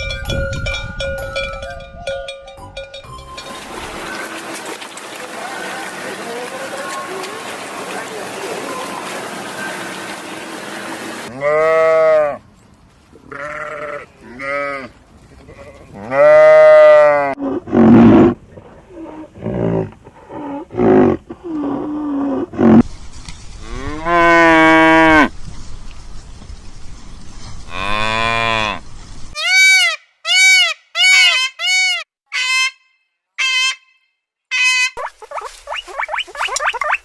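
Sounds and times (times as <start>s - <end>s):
cattle mooing: 11.3s - 12.4s, 15.5s - 18.3s, 27.7s - 28.8s.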